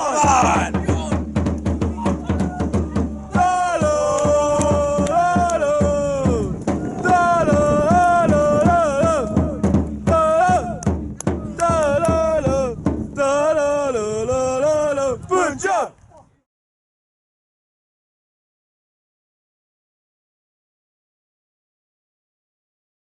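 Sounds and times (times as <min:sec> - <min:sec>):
drum beating: 0:00.0 - 0:13.6
football supporters chanting: 0:00.0 - 0:15.9.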